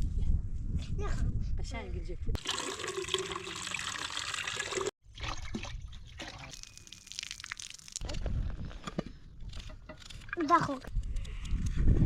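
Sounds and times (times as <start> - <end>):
trickling water: 2.4 - 8.0.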